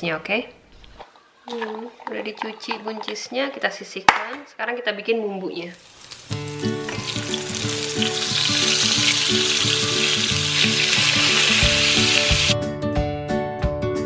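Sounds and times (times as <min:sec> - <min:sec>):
food sizzling in hot oil: 0:05.7 - 0:12.6
acoustic guitar music: 0:06.3 - 0:12.7.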